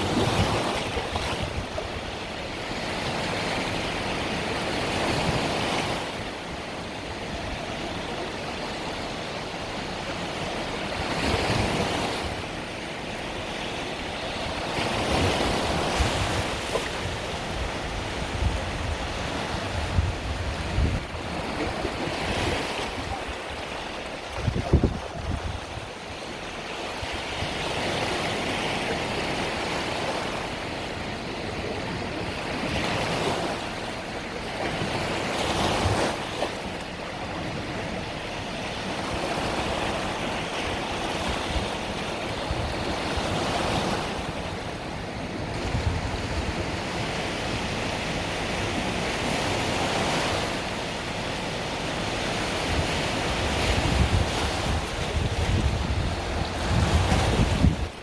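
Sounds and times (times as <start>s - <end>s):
small waves breaking on beach: 0.0s - 58.0s
wind buffeting microphone: 13.9s - 28.4s, 40.6s - 49.3s, 52.4s - 58.0s.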